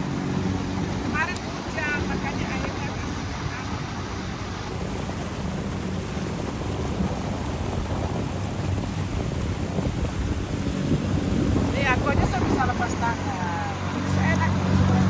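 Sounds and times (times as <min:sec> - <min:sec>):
motorboat engine hum: 0:00.0 - 0:15.0
water rushing: 0:00.0 - 0:15.0
wind: 0:00.0 - 0:15.0.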